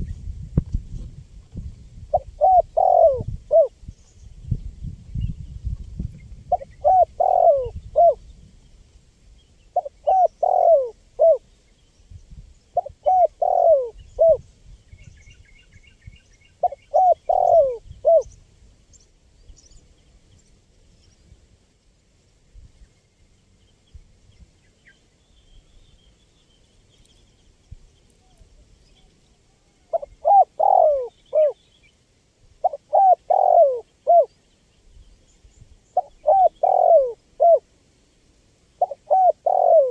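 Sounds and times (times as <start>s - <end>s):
dove cooing: 2.1s - 3.8s, 6.5s - 8.2s, 9.8s - 11.4s, 12.8s - 14.4s, 16.6s - 18.3s, 29.6s - 31.6s, 32.6s - 34.3s, 36.0s - 37.6s, 38.8s - 39.9s
faint small bird chirps: 22.8s - 32.0s.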